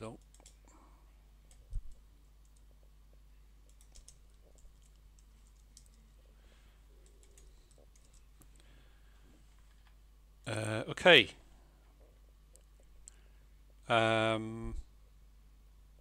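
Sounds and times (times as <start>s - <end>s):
steady low hum: 0.0s - 16.0s
computer keyboard typing: 0.2s - 0.8s, 1.4s - 2.8s, 3.6s - 6.1s, 7.0s - 8.6s.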